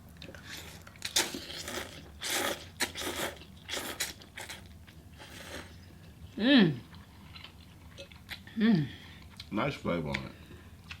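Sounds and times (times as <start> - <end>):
person chewing crunchy food: 0.0 - 6.3, 6.9 - 8.5.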